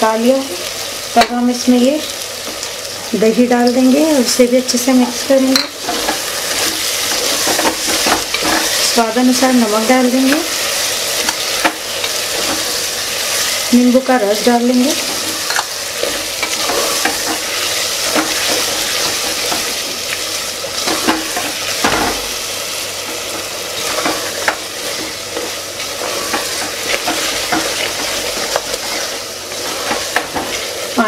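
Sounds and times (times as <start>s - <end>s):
vegetables sizzling: 0.0s - 31.0s
utensil scraping a pot: 5.8s - 9.0s, 15.0s - 19.9s, 23.1s - 31.0s.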